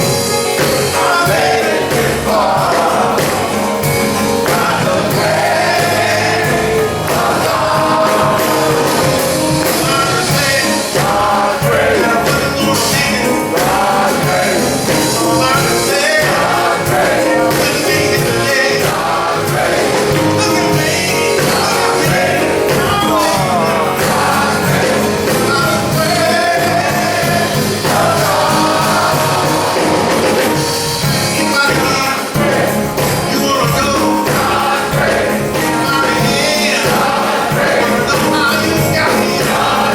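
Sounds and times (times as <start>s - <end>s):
instrumental accompaniment with beat: 0.0s - 39.9s
male chorus singing gospel song: 0.0s - 39.9s.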